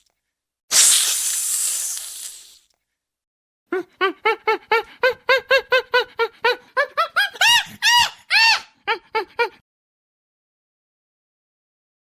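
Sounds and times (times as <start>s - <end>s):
animal hissing: 0.7s - 2.6s.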